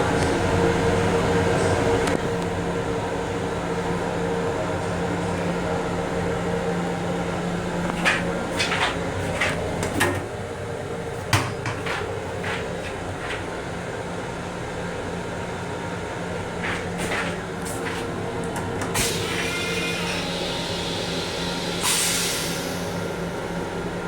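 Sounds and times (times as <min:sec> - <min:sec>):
train car running hum: 0:00.0 - 0:24.0
fittings clicking and knocking: 0:07.8 - 0:10.3, 0:11.2 - 0:13.5.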